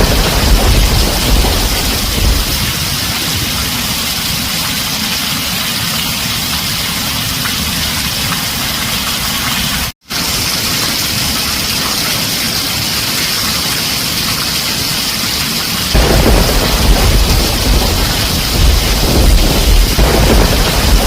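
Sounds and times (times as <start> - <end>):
low thunder rumble: 0.0 - 4.1, 16.0 - 21.0
heavy rain on a tin roof: 0.0 - 21.0.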